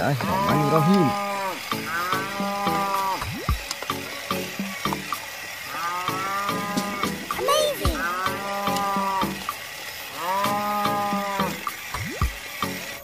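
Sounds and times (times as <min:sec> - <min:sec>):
cow mooing: 0:00.0 - 0:03.4, 0:05.7 - 0:11.8.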